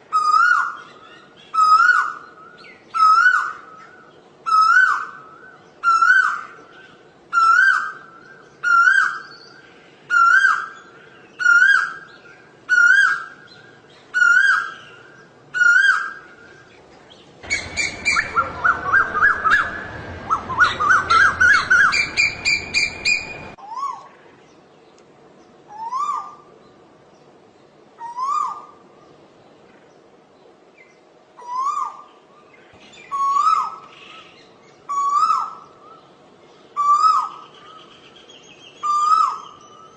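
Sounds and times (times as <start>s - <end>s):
shrill bubbling bird notes: 17.4s - 23.6s
koel rising calls: 17.4s - 24.0s.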